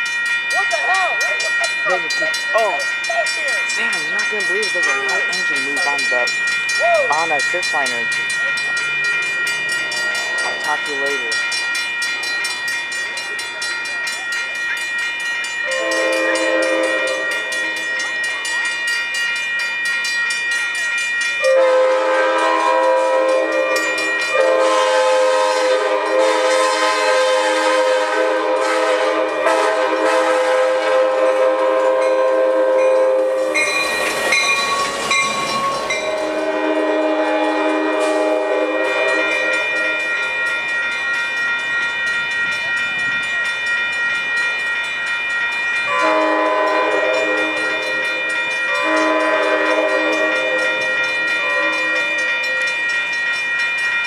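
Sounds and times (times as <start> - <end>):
locomotive high whine: 0.0 - 54.0
locomotive horn chords: 15.7 - 17.8, 21.4 - 33.7, 35.6 - 40.1, 45.9 - 52.2.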